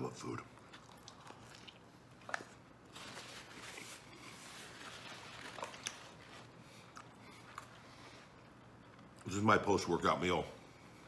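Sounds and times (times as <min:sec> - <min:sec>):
faint chewing: 0:00.5 - 0:09.3.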